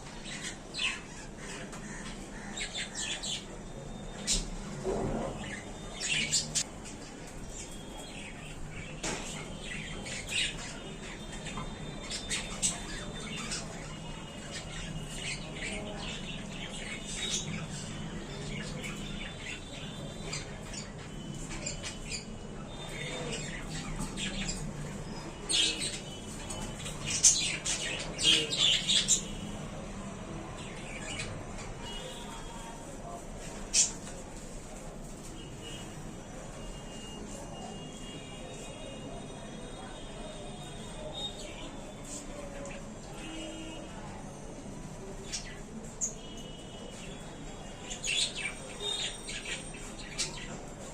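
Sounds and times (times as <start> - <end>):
budgerigars chirping and squawking: 9.3 - 22.2, 22.8 - 29.5.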